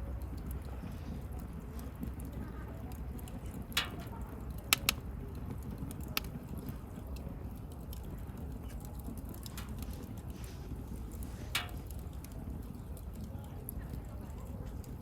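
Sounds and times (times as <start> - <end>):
campfire flames rumbling: 0.0 - 15.0
fire crackling: 0.0 - 15.0
sharp fire pops: 3.6 - 6.8, 8.5 - 12.9.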